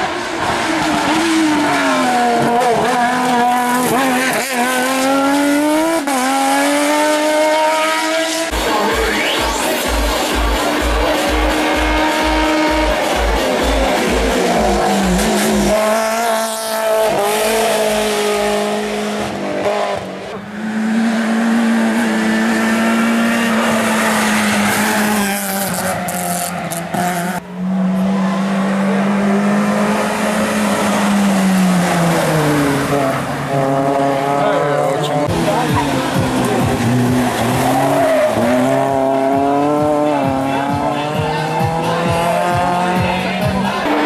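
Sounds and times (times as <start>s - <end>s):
race car engine at full throttle: 0.0s - 44.0s
electronic dance beat: 8.5s - 15.8s.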